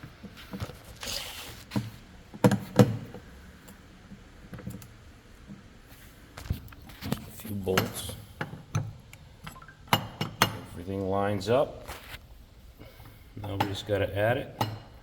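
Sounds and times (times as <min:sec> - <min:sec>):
short scraping rustle: 0:00.4 - 0:01.8.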